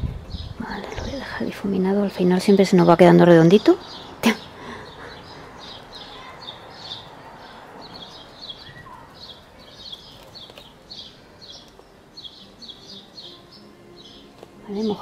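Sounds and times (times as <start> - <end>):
small birds chirping: 0.0 - 15.0
lower falling bird call: 3.8 - 15.0.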